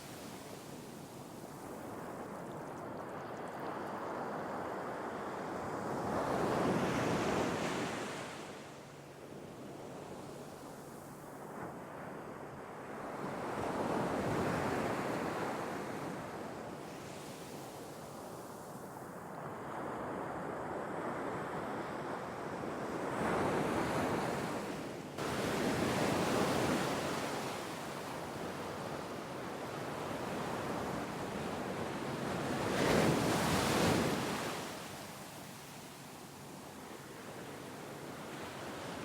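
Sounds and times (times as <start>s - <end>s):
sea waves washing ashore: 9.7s - 39.0s.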